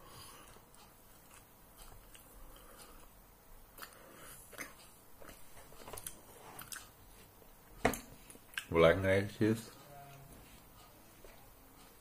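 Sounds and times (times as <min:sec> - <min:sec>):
person chewing: 0:00.1 - 0:07.4, 0:08.2 - 0:08.7.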